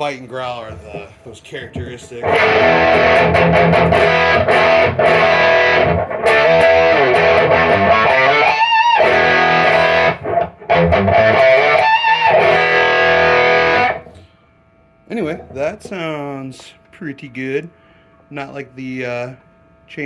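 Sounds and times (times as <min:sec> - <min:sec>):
distorted electric guitar riffs: 0:01.8 - 0:14.3.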